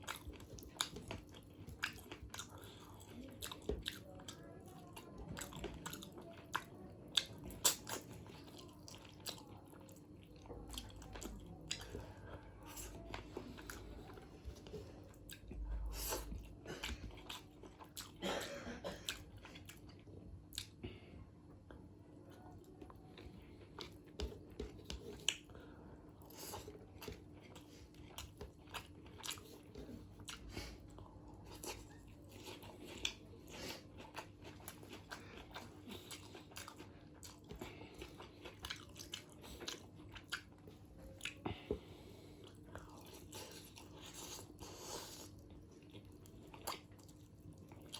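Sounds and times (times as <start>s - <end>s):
faint steady hum: 0.0s - 47.9s
person chewing and biting: 15.1s - 18.1s, 26.2s - 30.8s, 31.5s - 41.4s.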